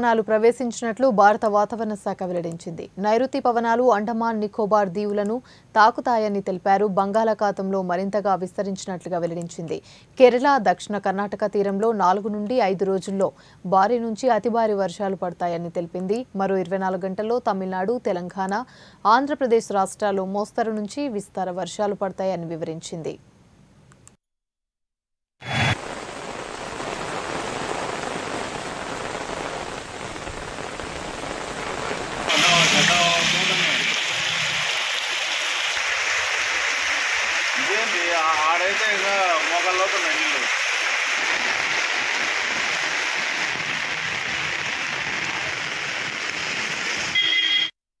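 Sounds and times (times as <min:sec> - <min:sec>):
rain falling on a wet street: 0:25.8 - 0:47.7
short high tone: 0:32.3 - 0:33.8.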